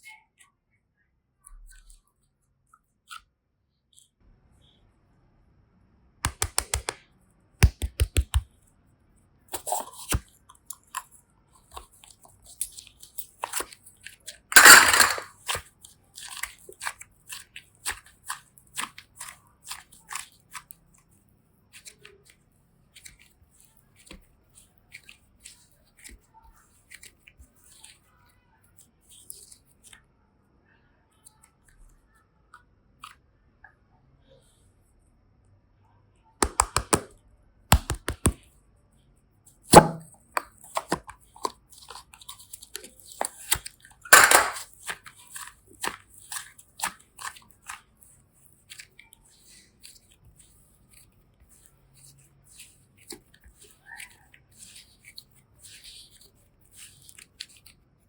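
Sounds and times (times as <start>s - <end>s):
craft materials clicking: 6.3s - 7.0s, 7.6s - 8.4s, 14.6s - 15.3s, 36.4s - 37.1s, 37.7s - 38.4s, 44.1s - 44.6s.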